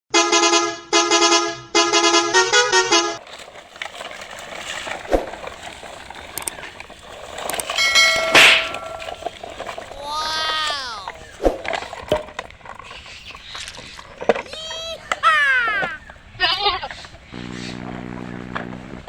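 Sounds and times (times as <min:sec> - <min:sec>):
horn tooting: 0:00.1 - 0:03.2, 0:07.7 - 0:09.3, 0:16.8 - 0:19.0.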